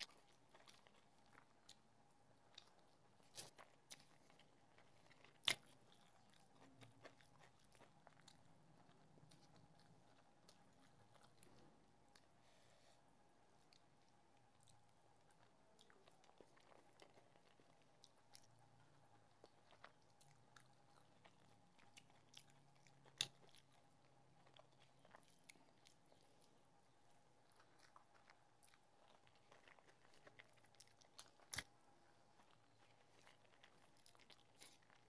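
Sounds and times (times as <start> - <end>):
chewing and mouth clicks: 0.0 - 12.3, 13.6 - 35.0
faint steady hum: 0.0 - 35.0.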